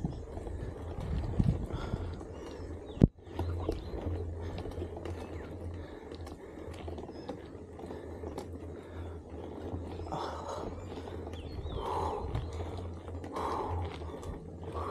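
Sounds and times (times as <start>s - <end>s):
bicycle clicks and rattles: 0.0s - 14.9s
wind rumbling on microphone: 0.0s - 14.9s.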